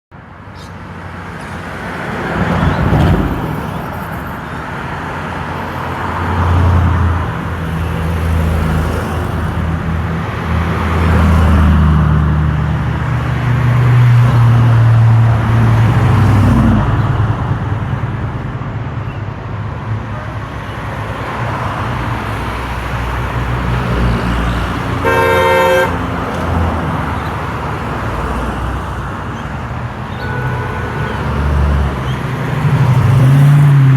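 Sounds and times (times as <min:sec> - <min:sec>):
car engines passing by: 0:00.2 - 0:33.9
car horn toot: 0:25.0 - 0:26.1, 0:30.1 - 0:31.7.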